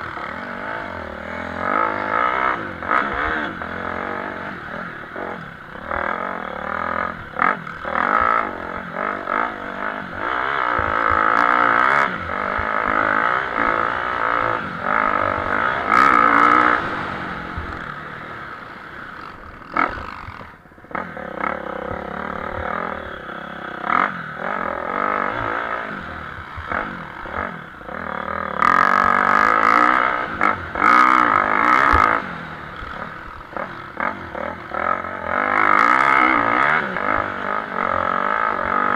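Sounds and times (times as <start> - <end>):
motocross bike engines revving: 0.0 - 38.9.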